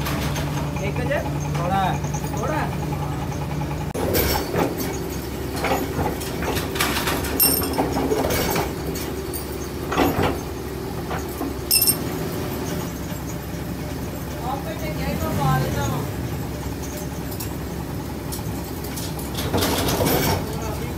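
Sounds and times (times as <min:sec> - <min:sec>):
metal clanks and knocks: 0:03.9 - 0:12.1, 0:18.3 - 0:20.8.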